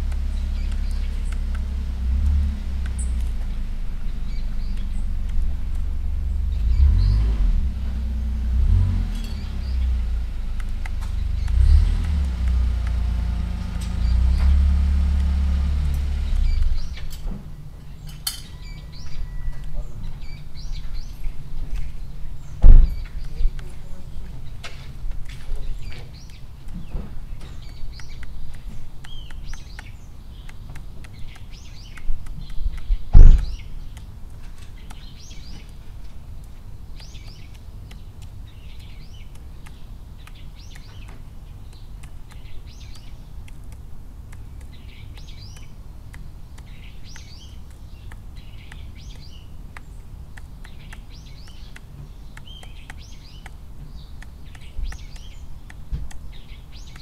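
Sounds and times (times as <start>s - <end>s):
low outdoor rumble: 0.0s - 57.0s
small bird chirping: 0.0s - 57.0s
sharp loud knock: 22.6s - 23.0s.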